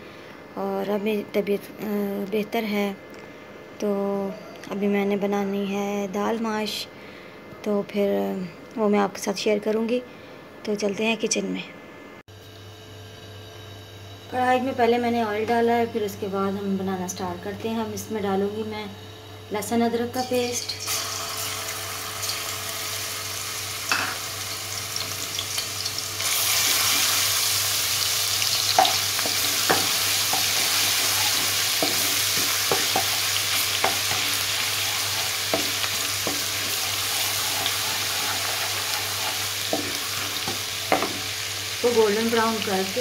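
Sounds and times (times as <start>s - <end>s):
paste sizzling in hot oil: 20.7s - 43.0s
wooden spatula knocking on pan: 29.7s - 30.0s, 40.9s - 41.2s.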